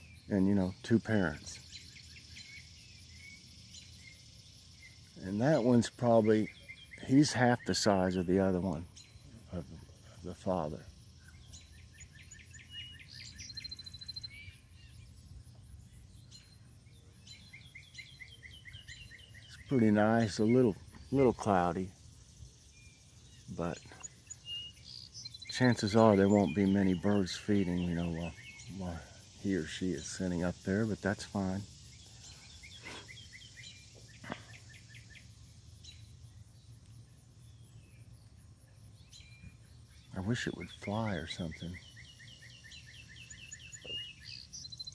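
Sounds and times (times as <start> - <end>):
bird chirps: 0.0 - 44.9
bird trill: 0.0 - 44.9
insects buzzing: 0.0 - 44.9.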